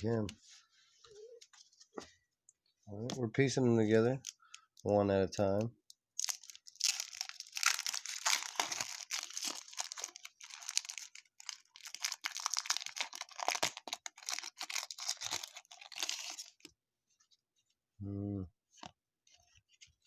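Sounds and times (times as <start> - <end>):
card pack wrappers tearing: 6.2 - 16.7
cards rustling: 6.2 - 16.7.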